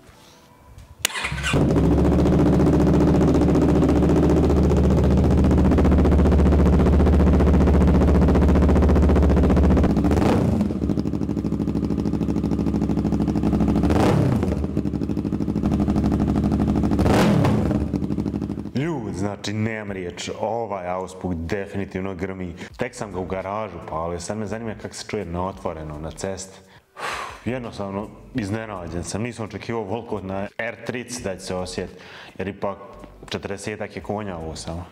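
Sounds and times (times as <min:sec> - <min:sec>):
engine revving: 0:01.0 - 0:18.7
motorcycle engine idling: 0:01.1 - 0:18.8.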